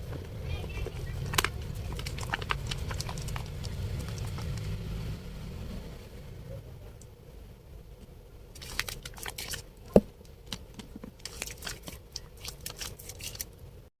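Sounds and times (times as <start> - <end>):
soap lathering crackles: 0.8 - 4.8, 8.6 - 9.6, 11.2 - 13.5.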